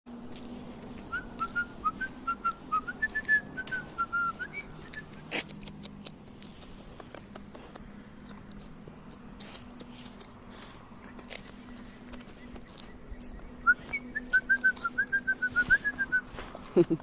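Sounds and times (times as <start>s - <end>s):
irregular clicks and scuffs: 0.1s - 17.0s
whistling short clear notes: 1.1s - 5.3s, 13.2s - 16.4s.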